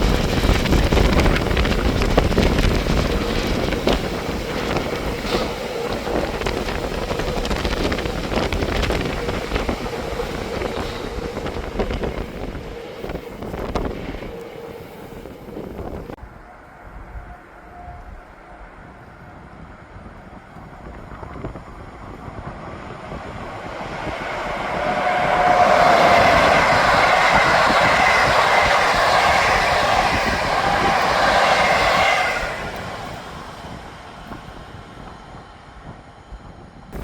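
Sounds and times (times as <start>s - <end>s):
train passing by: 0.0s - 37.0s.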